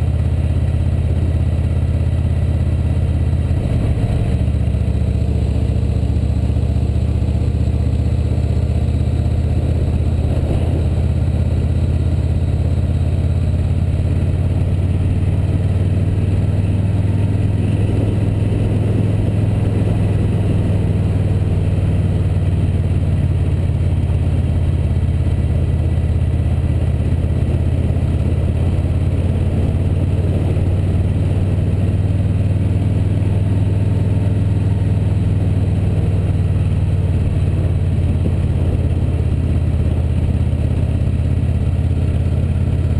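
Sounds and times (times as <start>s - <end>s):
motorcycle engine cruising: 0.0s - 42.9s.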